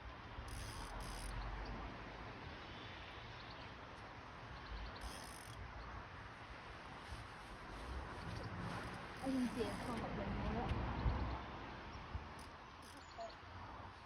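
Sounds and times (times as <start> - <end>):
faint high chirps: 12.8 - 13.4.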